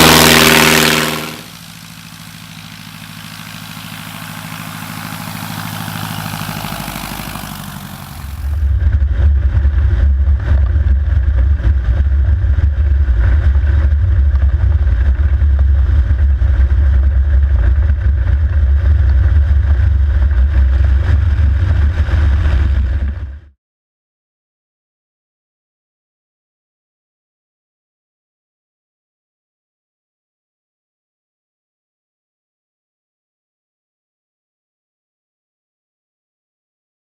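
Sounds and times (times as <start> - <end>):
deep steady rumble: 0.0 - 23.5
light aircraft engine and propeller: 0.0 - 23.5.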